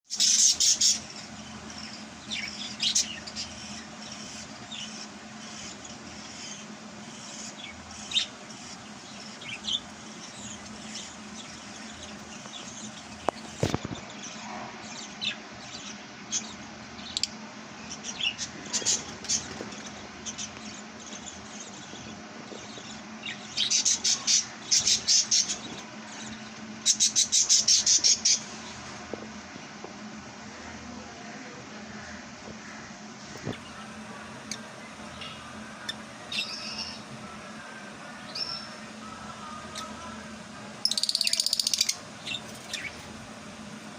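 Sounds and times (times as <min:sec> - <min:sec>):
lovebirds chirping: 0:00.1 - 0:14.3, 0:32.0 - 0:43.9
steady low hum: 0:00.1 - 0:43.9.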